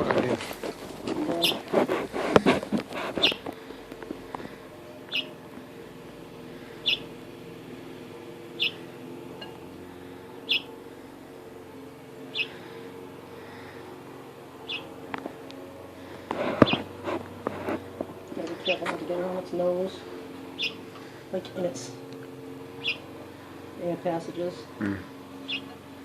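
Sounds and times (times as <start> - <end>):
fledgling bird chirping: 1.0 - 1.7, 2.8 - 3.8, 4.4 - 5.5, 6.5 - 7.2, 8.5 - 9.7, 10.4 - 10.8, 12.3 - 12.8, 14.6 - 15.0, 16.6 - 17.0, 19.7 - 23.4, 24.6 - 25.9.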